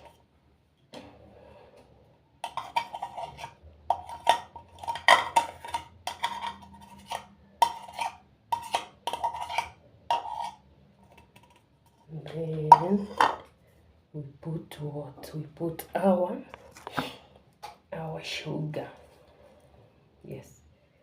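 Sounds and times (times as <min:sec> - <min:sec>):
spoon scraping mixing bowl: 0:02.4 - 0:13.5.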